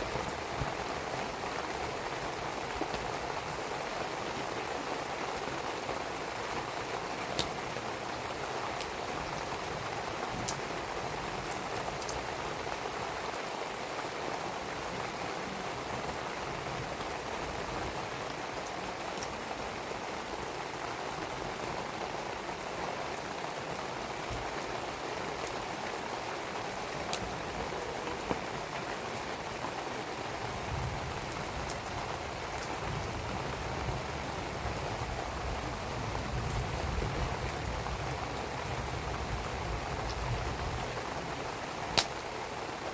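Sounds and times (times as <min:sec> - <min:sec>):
steady rain falling: 0:00.0 - 0:42.9
wood fire crackling: 0:40.1 - 0:42.3.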